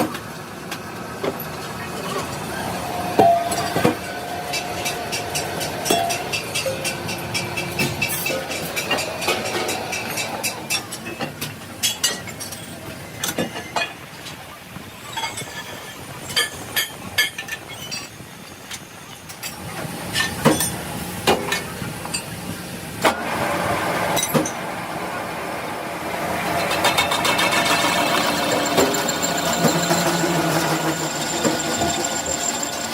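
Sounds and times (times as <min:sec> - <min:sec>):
machine running: 0:23.3 - 0:32.9.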